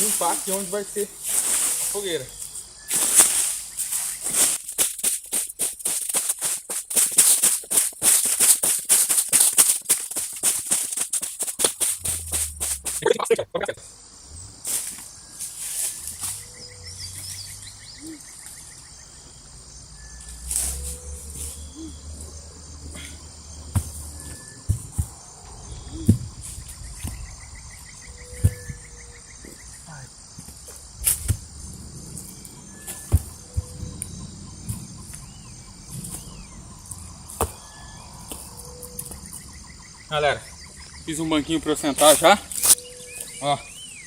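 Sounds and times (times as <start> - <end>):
forest insects chorus: 0.0 - 44.0
sharp knocks and thuds: 4.2 - 13.1, 23.6 - 25.3, 25.9 - 27.2, 28.3 - 28.8, 30.4 - 31.5, 32.9 - 34.0, 37.3 - 37.6.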